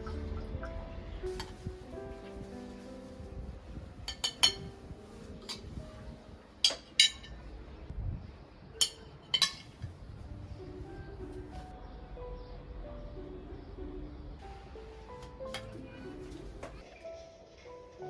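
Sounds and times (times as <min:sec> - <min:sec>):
faint background music: 0:00.0 - 0:18.0
kitchenware clinking: 0:04.1 - 0:05.8, 0:06.6 - 0:07.4, 0:08.8 - 0:09.9, 0:15.5 - 0:16.8.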